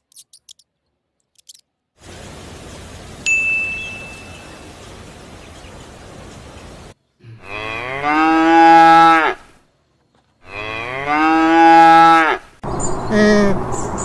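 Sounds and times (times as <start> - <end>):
cow mooing: 7.2 - 9.4, 10.4 - 12.5.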